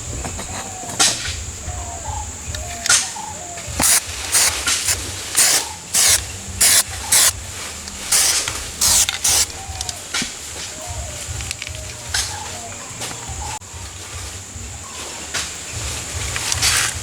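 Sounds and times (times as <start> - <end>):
pressurised spray hissing bursts: 3.8 - 9.6.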